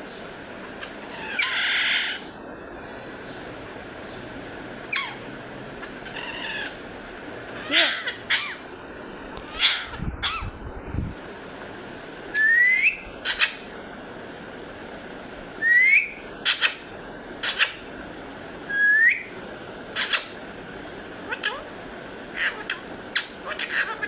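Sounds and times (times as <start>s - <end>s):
parrot sharp calls: 0.7s - 2.3s, 4.9s - 6.8s, 7.5s - 8.7s, 9.4s - 10.5s, 12.3s - 13.7s, 15.6s - 18.0s, 18.7s - 20.5s, 21.2s - 24.0s
parrot whistling rising note: 12.3s - 13.0s.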